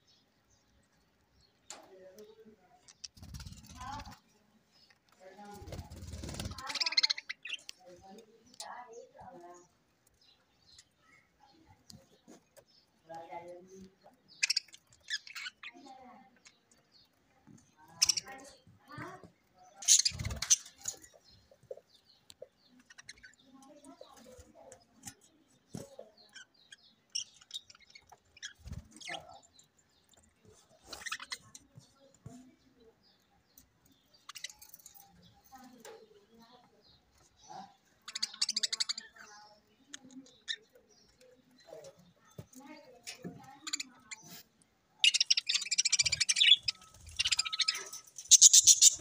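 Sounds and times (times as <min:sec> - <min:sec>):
budgerigars chirping: 0:05.8 - 0:07.7, 0:14.2 - 0:15.8, 0:18.0 - 0:18.4, 0:19.8 - 0:23.4, 0:26.3 - 0:29.6, 0:37.3 - 0:39.3, 0:45.0 - 0:49.0.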